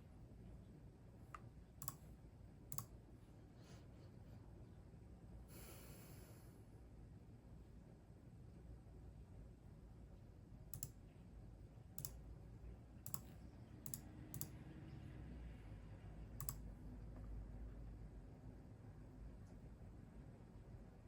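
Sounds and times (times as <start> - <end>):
faint low room rumble: 0.0 - 21.0
keyboard keys clicking: 1.8 - 2.0, 16.4 - 16.6.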